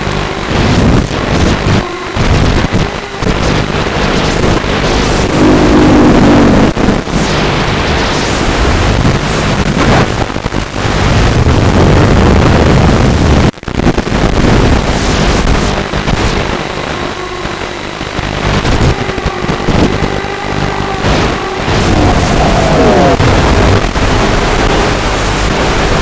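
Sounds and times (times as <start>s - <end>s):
quadcopter motors whining: 0.1s - 9.6s, 14.8s - 25.4s
wind buffeting microphone: 0.3s - 26.0s.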